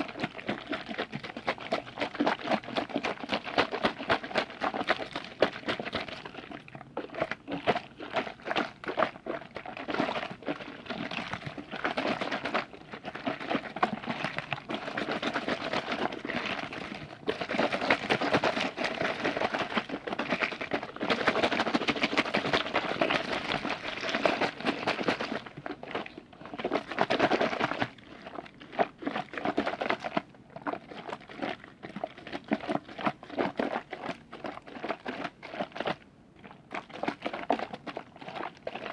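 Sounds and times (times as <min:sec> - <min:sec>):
wet liquid clicks and crackles: 0:00.0 - 0:38.9.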